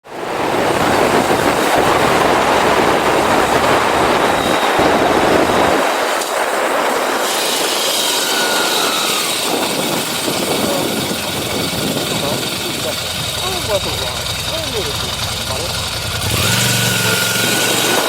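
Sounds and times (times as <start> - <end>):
wind rushing on microphone: 0.0 - 18.0
deep engine rumble: 9.5 - 18.0.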